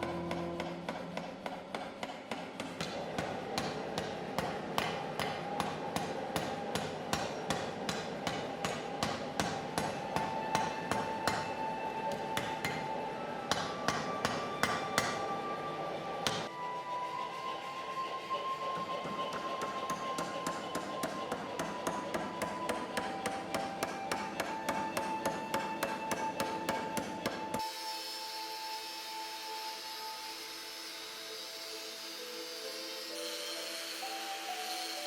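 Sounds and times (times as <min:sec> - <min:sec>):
hammer striking steel on anvil: 0:00.0 - 0:15.3, 0:16.2 - 0:16.5, 0:18.8 - 0:27.7.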